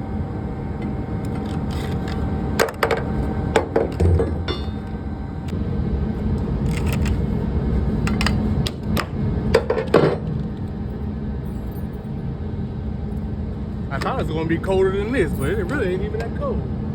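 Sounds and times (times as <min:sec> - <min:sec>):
diesel truck engine idling: 0:00.0 - 0:09.5
metal clanks and knocks: 0:01.3 - 0:05.0, 0:08.1 - 0:10.3.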